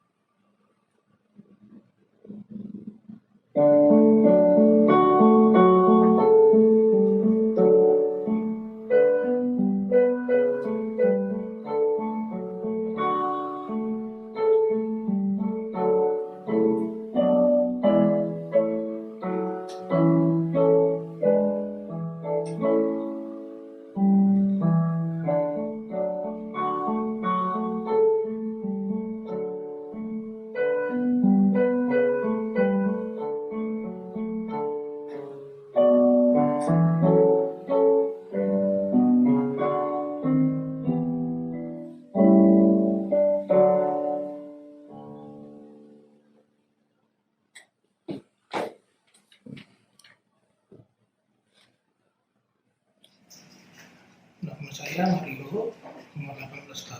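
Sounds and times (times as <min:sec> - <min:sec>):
piano chords: 0:01.4 - 0:46.7.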